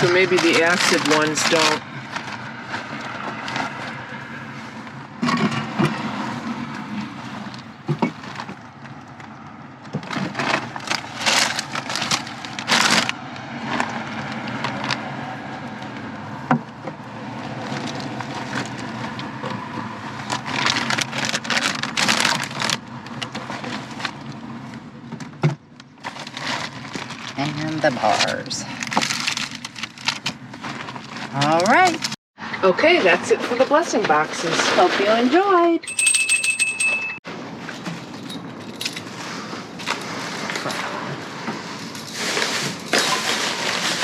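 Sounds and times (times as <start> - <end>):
packages rustling: 0.0 - 5.0, 10.0 - 15.0, 20.1 - 24.3, 26.0 - 27.4, 28.0 - 32.2, 38.0 - 44.0.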